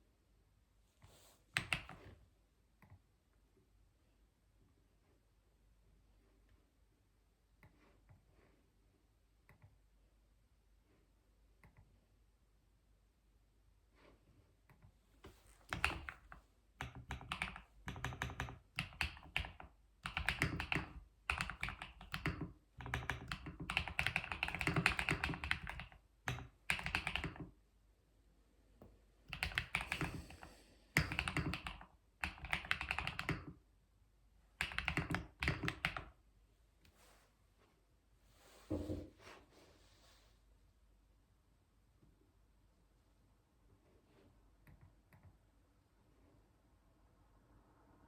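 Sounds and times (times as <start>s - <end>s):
typing on computer keyboard: 1.6s - 2.1s, 15.7s - 27.6s, 29.3s - 30.4s, 31.0s - 33.6s, 34.6s - 36.2s.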